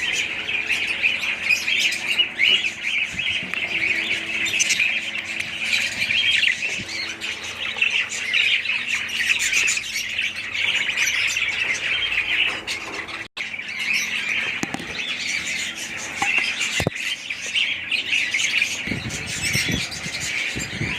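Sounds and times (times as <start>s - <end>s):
parrots chattering and squawking: 0.0s - 20.9s.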